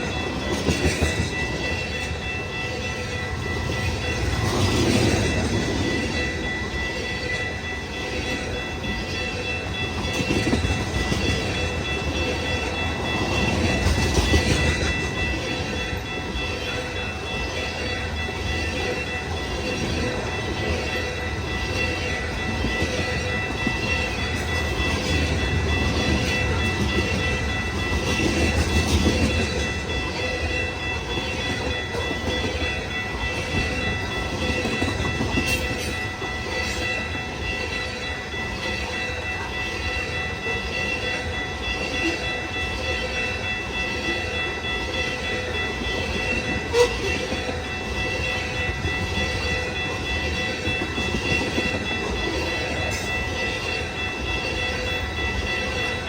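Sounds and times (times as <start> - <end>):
high-pitched ringing: 0.0 - 56.0
train wheels clacking on rails: 0.0 - 56.0.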